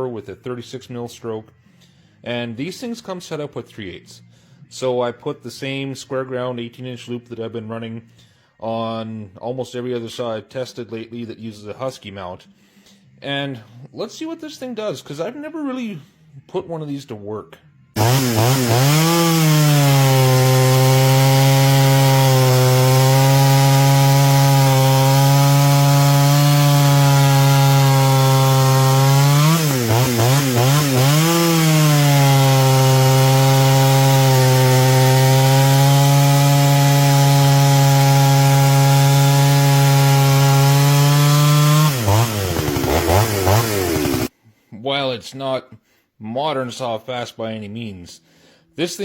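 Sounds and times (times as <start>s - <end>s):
chainsaw cutting wood: 18.0s - 44.3s.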